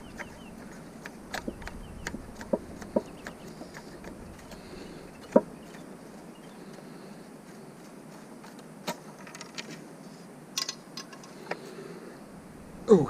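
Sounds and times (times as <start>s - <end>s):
metallic clicks and knocks: 10.6s - 11.3s.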